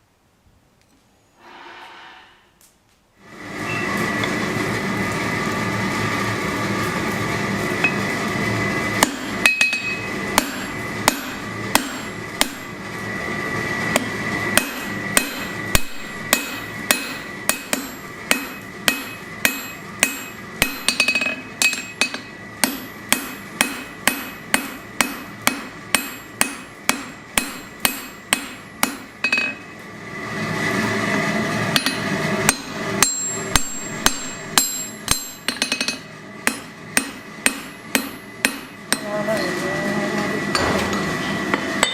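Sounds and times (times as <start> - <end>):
hammer striking steel on anvil: 9.0 - 12.7, 13.9 - 29.7, 31.7 - 39.5, 40.5 - 41.9.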